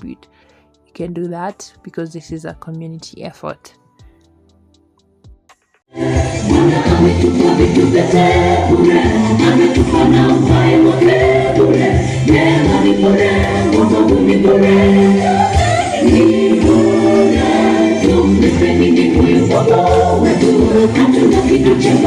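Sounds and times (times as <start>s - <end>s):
choir singing gospel music: 5.9s - 22.0s.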